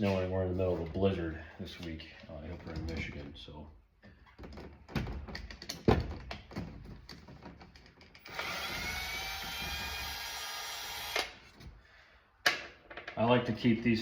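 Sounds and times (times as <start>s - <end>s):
handling clicks and knocks: 1.8s - 3.4s, 4.0s - 8.2s
electric drill whining: 8.2s - 11.5s.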